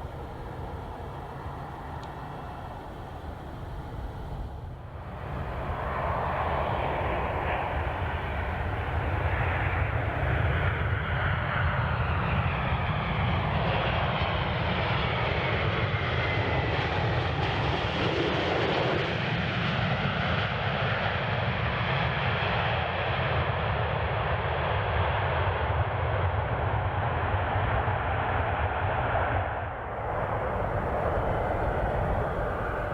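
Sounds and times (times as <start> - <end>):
faint sloping whine: 0.0 - 11.0, 29.8 - 32.9
jet engines roaring: 0.0 - 17.5, 29.8 - 32.9.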